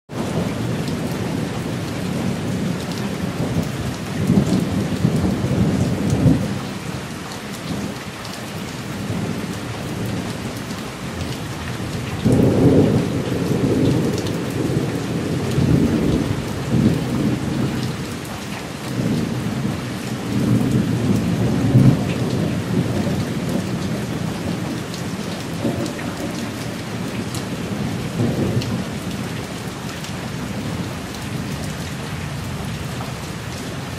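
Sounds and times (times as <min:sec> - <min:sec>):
rolling thunder: 0:00.1 - 0:06.6, 0:09.0 - 0:18.1, 0:18.9 - 0:29.5
steady rain falling: 0:00.1 - 0:33.9.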